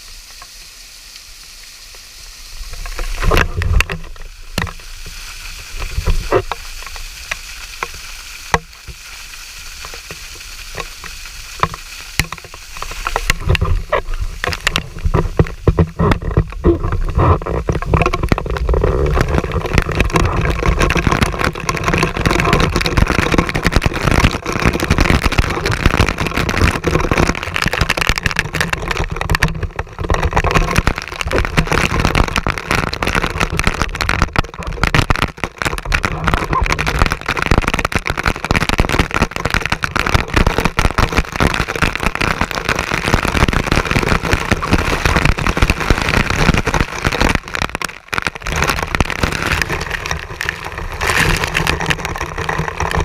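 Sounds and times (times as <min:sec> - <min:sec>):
small clicks and crackles: 0:00.0 - 0:53.0.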